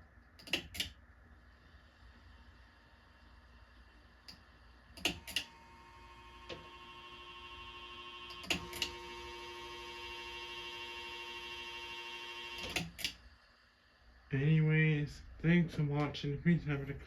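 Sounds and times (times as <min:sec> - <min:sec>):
fan motor electric whine: 0:05.0 - 0:13.1.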